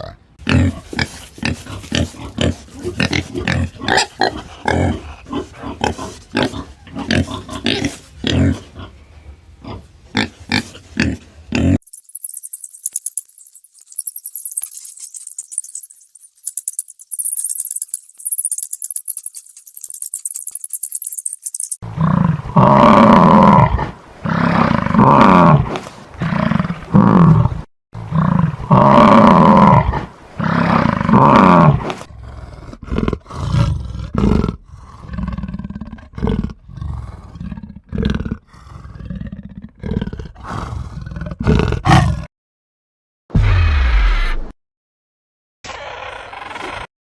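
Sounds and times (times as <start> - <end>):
large animal roaring: 21.9 - 42.3
animal grunting calls: 39.9 - 42.3.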